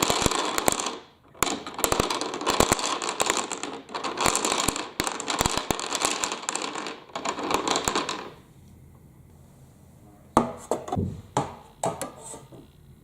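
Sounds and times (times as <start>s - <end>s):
balls clattering down plastic track: 0.0s - 8.5s.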